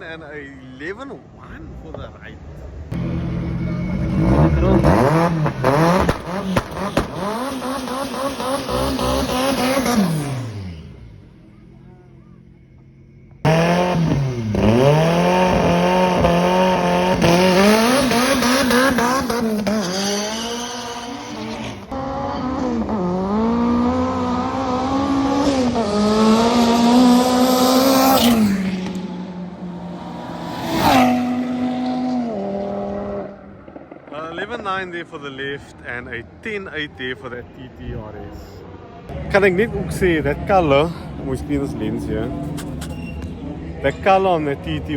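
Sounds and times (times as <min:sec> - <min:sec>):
race car engine revving: 0:02.9 - 0:12.3, 0:13.4 - 0:34.6
tyre squeal: 0:42.4 - 0:43.5.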